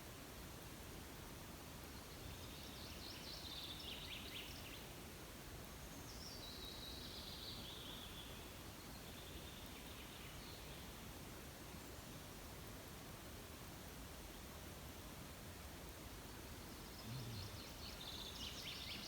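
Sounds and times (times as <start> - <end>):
faint outdoor hiss: 0.0 - 19.0
songbird singing: 16.2 - 19.0.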